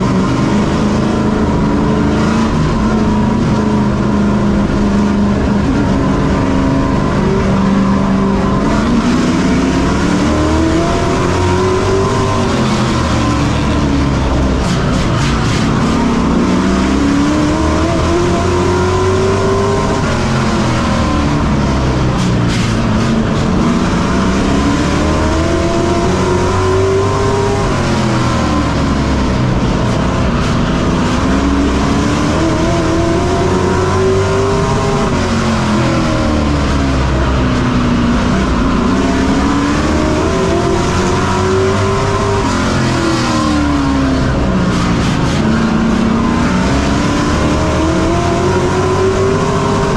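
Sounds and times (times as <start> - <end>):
racing truck engine: 0.0 - 49.9.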